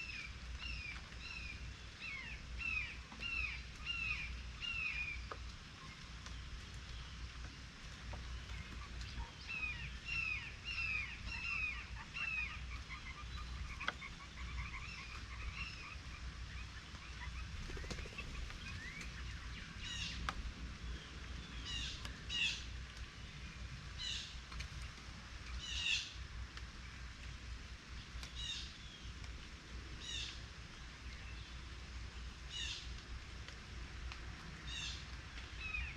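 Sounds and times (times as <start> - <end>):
songbirds chirping: 0.0 - 35.9
steady low rumble: 14.4 - 25.6.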